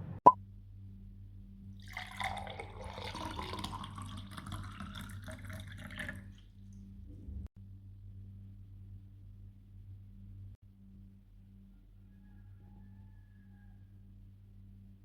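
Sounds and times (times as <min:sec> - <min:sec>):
water running and splashing: 0:01.9 - 0:06.4.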